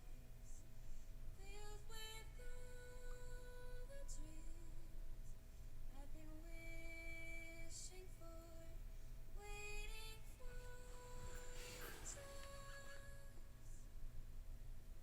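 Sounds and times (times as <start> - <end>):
woman singing slow song: 0.0 - 0.7, 1.3 - 14.0
cymbal-like hiss: 10.6 - 13.2.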